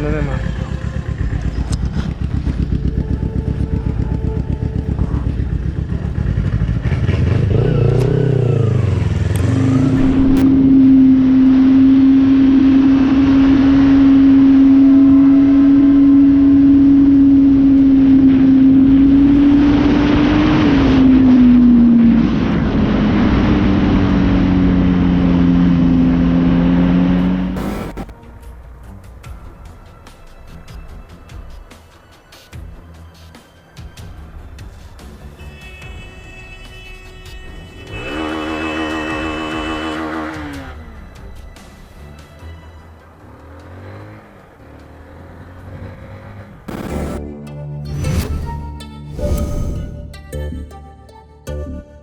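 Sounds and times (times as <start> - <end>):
motorcycle engine running: 0.0 - 28.1, 37.6 - 47.2.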